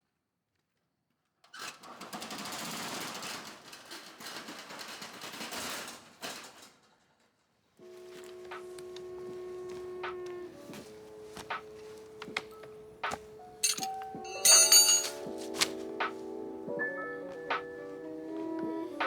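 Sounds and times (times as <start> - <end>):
music with ringing tones: 7.8 - 19.0.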